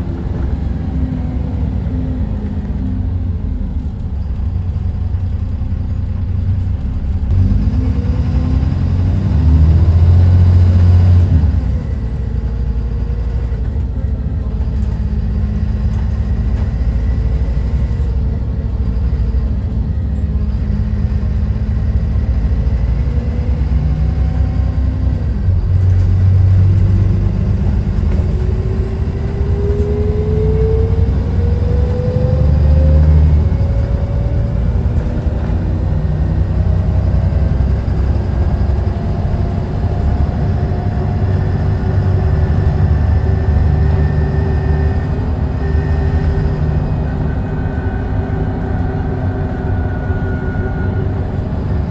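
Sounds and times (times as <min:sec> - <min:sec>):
bus engine rumbling: 0:00.0 - 0:51.9
whine rising in pitch: 0:26.8 - 0:51.9.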